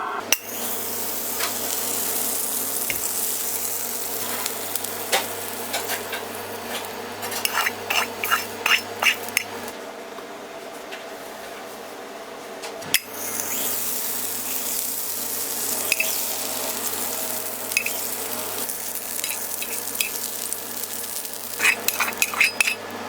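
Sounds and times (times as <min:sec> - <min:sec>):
food sizzling in a pan: 0:00.3 - 0:09.7, 0:13.0 - 0:23.0
metal utensils scraping a pan: 0:04.2 - 0:09.6, 0:15.6 - 0:22.9.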